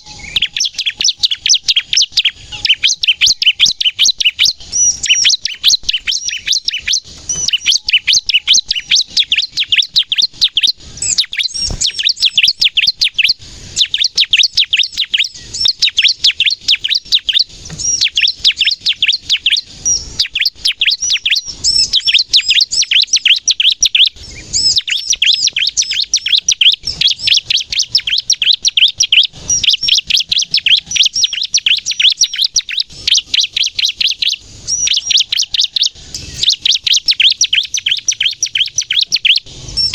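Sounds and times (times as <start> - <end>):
bird singing sharp high chirps: 0.0 - 39.9.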